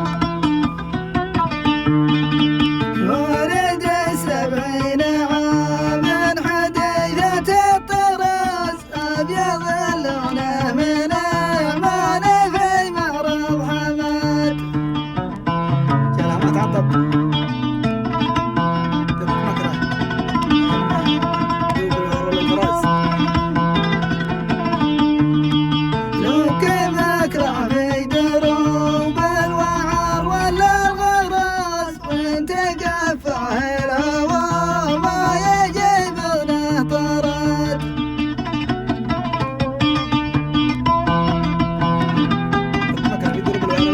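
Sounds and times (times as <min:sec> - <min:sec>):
instrumental accompaniment: 0:00.0 - 0:43.9
man singing: 0:02.9 - 0:14.8, 0:19.2 - 0:23.6, 0:26.1 - 0:37.9, 0:42.9 - 0:43.9.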